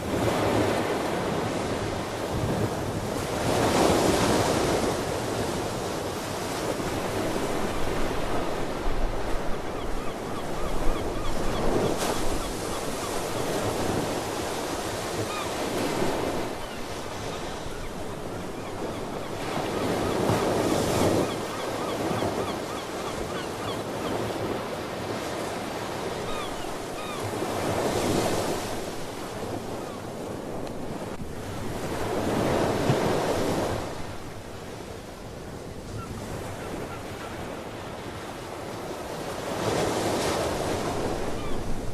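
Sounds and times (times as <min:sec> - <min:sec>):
ocean waves breaking: 0:00.0 - 0:41.9
sea birds calling: 0:08.3 - 0:28.7, 0:35.8 - 0:37.9, 0:40.8 - 0:41.9.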